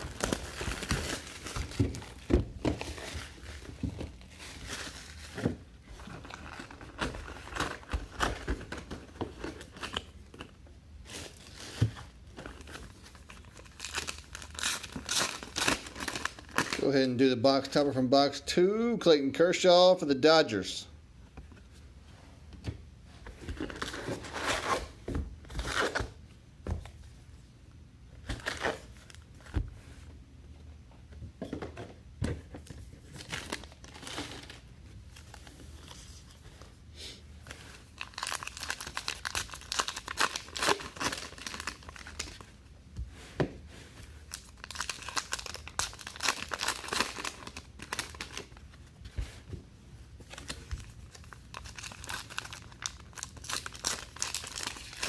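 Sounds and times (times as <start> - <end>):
card pack wrappers tearing and crinkling: 0.0 - 3.7, 12.4 - 16.9, 33.1 - 34.6, 37.8 - 42.5, 44.3 - 48.6, 50.3 - 55.0.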